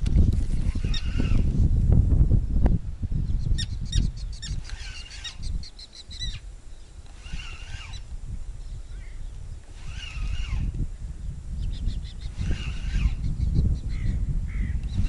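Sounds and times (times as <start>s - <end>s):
rapid bird chirps: 3.3s - 10.7s
pitched bird call: 3.4s - 6.4s.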